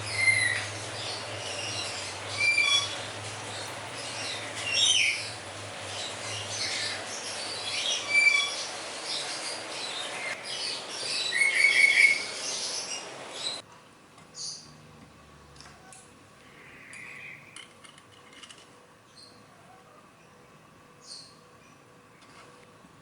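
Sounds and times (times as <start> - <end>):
steady low hum: 0.0 - 11.1
birds chirping: 0.0 - 13.6.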